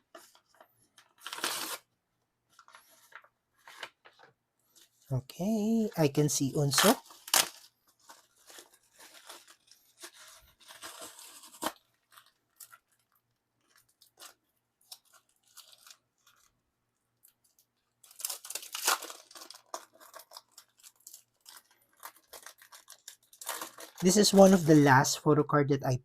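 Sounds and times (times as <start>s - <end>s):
packaging being torn open: 1.0s - 1.9s, 6.6s - 16.5s, 18.0s - 24.9s.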